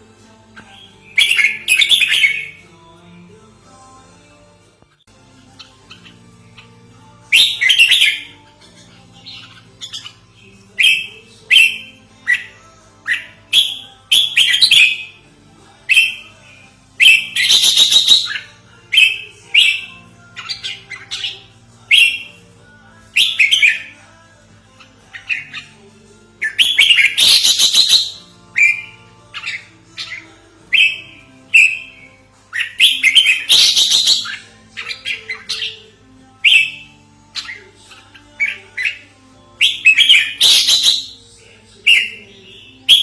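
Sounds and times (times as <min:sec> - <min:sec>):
bird chirping: 0:17.0 - 0:22.4, 0:26.5 - 0:41.2.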